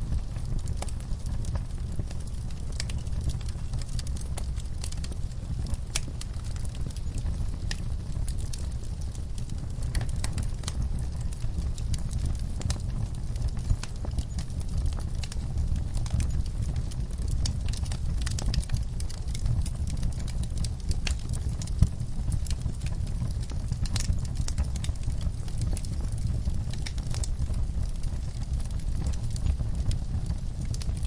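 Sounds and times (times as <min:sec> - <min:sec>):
fire pops and snaps: 0:00.0 - 0:31.0
low fire rumble: 0:00.0 - 0:31.0
wood fire crackling: 0:00.0 - 0:31.0.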